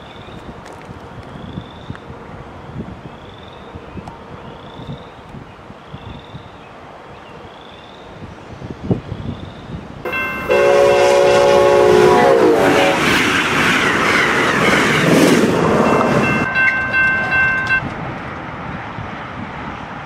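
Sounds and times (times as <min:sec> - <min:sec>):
rush of train cars passing: 0:06.8 - 0:20.0
train horn: 0:10.1 - 0:13.2.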